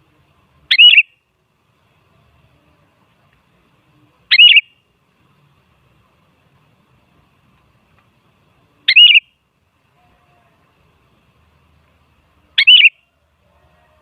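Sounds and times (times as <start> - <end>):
bird warbled calls: 0.7 - 1.2, 4.3 - 4.8, 8.8 - 9.3, 12.6 - 13.0.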